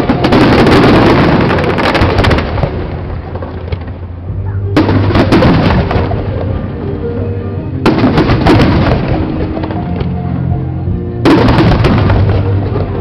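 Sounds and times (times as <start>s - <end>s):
fireworks bang and crackling: 0.0s - 4.0s, 4.8s - 6.4s, 7.8s - 10.2s, 11.2s - 13.0s
music playing: 0.0s - 13.0s.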